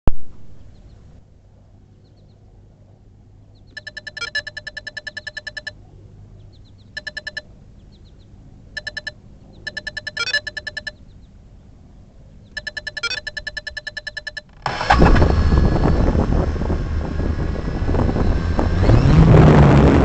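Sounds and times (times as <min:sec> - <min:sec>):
faint short high chirps: 0:03.8 - 0:05.7, 0:07.0 - 0:07.4, 0:08.8 - 0:11.0, 0:12.6 - 0:14.9
rapid electronic beeping: 0:03.8 - 0:05.7, 0:07.0 - 0:07.4, 0:08.8 - 0:11.0, 0:12.6 - 0:15.2.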